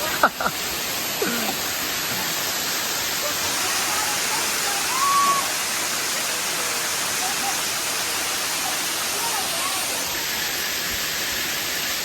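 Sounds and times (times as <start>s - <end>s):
falling water rushing: 0.0s - 12.0s.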